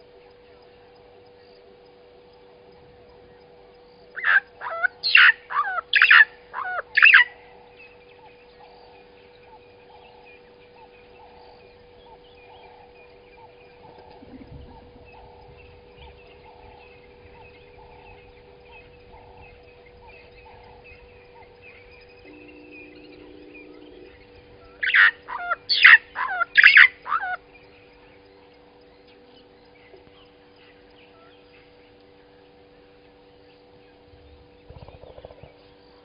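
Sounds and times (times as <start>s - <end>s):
steady hum: 0.0s - 36.0s
bird harsh calls: 4.2s - 27.4s.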